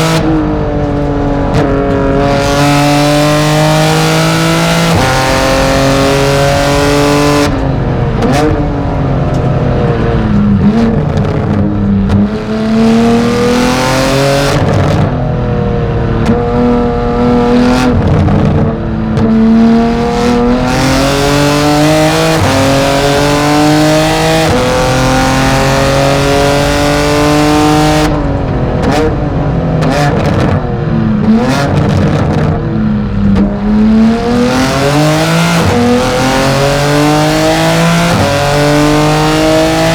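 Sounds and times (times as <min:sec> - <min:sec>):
race car engine accelerating: 0:00.0 - 0:39.9.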